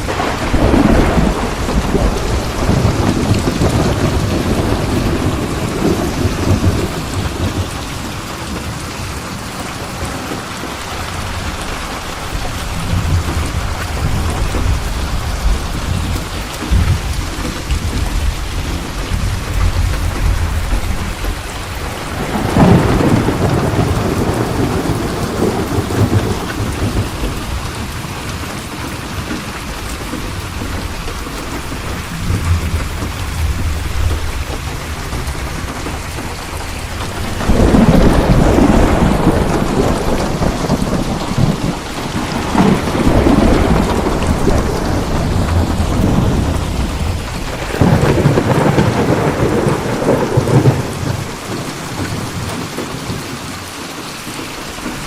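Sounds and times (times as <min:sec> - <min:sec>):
heavy rain falling: 0:00.0 - 0:55.0
thunder rumbling: 0:00.0 - 0:55.0.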